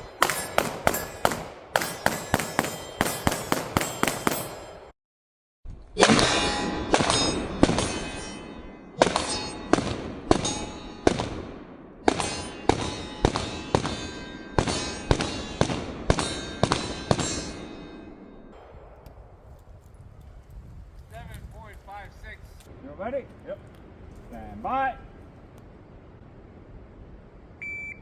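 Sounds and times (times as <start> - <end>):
pistol shots with ringing echo: 0.0 - 4.9, 6.0 - 19.5.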